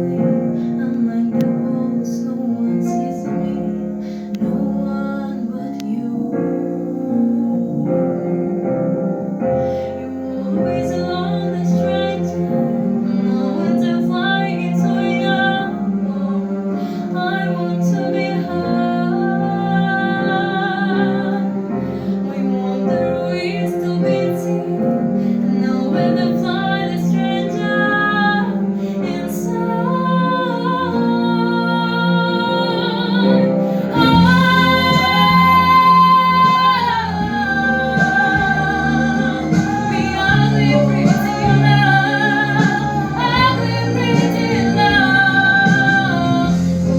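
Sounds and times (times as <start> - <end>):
instrumental accompaniment: 0.0 - 46.9
woman singing: 0.0 - 46.9.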